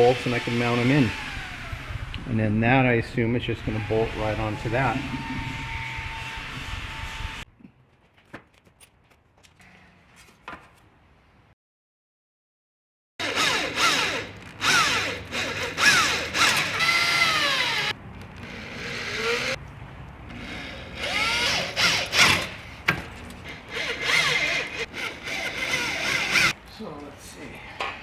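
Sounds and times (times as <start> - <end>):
power drill motor: 0.0 - 2.2, 3.6 - 7.4, 13.2 - 19.6, 20.3 - 26.6.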